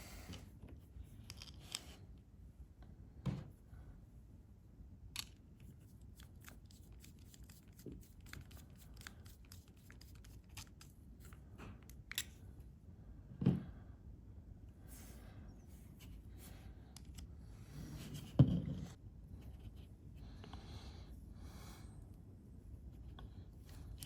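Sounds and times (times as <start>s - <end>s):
small parts and tools clicking: 5.2s - 12.4s.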